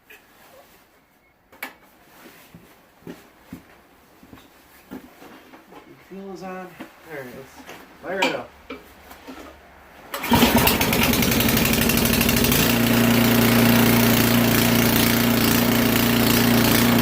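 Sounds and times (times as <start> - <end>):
snow blower engine pull-started: 10.1 - 17.0
snow blower engine idling: 10.2 - 17.0.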